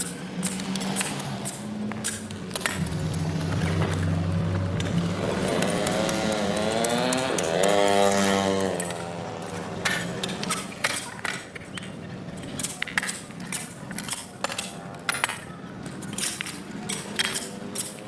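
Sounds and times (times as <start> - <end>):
faint low hum: 2.8 - 6.3.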